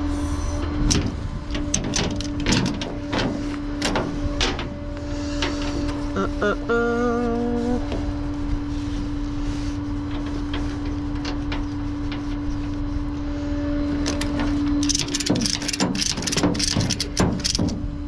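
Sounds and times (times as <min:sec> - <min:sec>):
truck engine idling: 0:00.0 - 0:17.7
sharp clicks and knocks: 0:00.9 - 0:06.0, 0:14.0 - 0:17.9.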